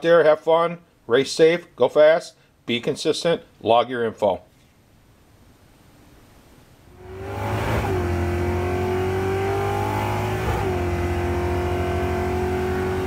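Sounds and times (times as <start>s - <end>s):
car engine accelerating hard: 7.0s - 13.0s.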